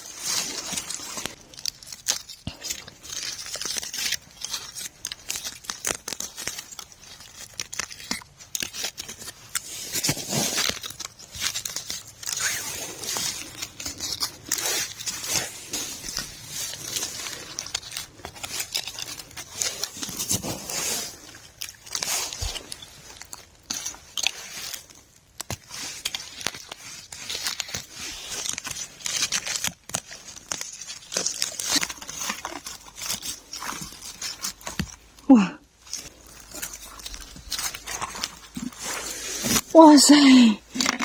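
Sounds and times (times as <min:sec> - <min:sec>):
frozen growth crunching and tearing: 0:00.0 - 0:41.0.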